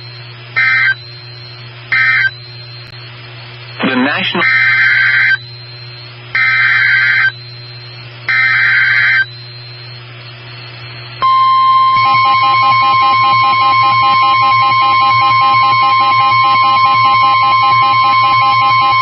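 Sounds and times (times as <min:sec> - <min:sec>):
steady warning alarm tone: 0:00.0 - 0:03.1, 0:03.7 - 0:19.0
rasping data screech: 0:03.8 - 0:05.4.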